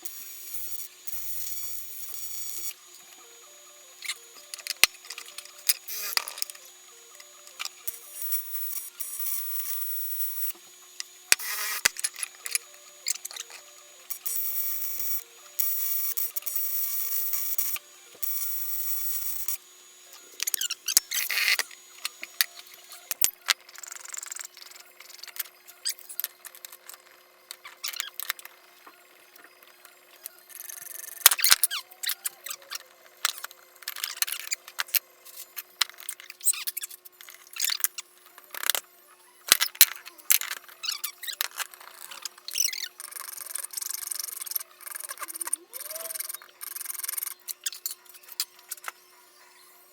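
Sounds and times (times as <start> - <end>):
steady buzzing tone: 0.0 - 25.0.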